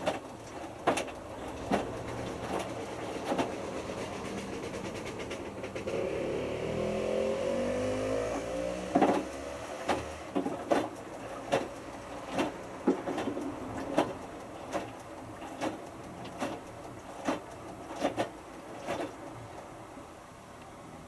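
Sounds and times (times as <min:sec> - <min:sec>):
washing machine drum knocking: 0:00.0 - 0:03.6, 0:08.2 - 0:19.2
washing machine motor whining: 0:00.0 - 0:19.5.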